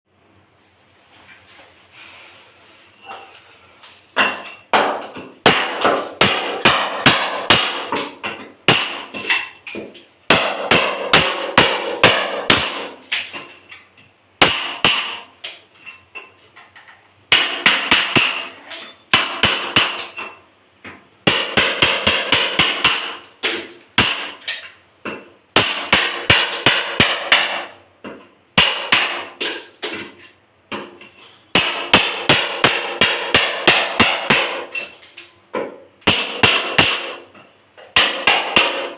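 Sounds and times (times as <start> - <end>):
hammer blows breaking tiles: 4.2 - 13.6, 14.4 - 15.3, 17.3 - 20.3, 21.2 - 27.7, 28.6 - 38.9.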